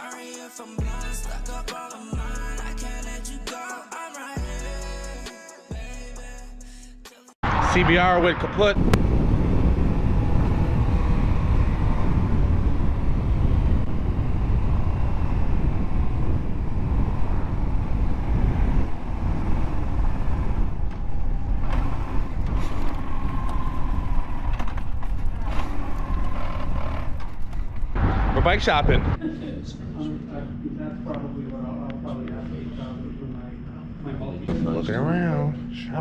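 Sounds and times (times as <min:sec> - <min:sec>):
wind rumble on microphone: 0:07.5 - 0:29.2.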